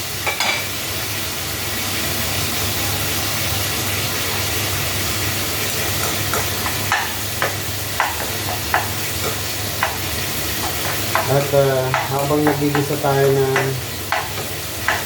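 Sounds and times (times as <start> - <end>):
vegetables sizzling in a pan: 0.0 - 15.0
spatula stirring and scraping: 5.8 - 15.0.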